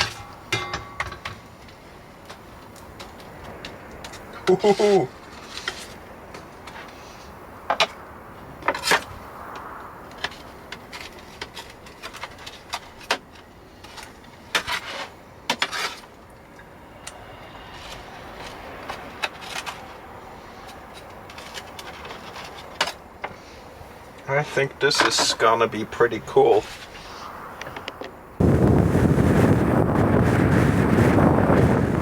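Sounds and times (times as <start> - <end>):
pan and utensils clinking: 0.0 - 1.4.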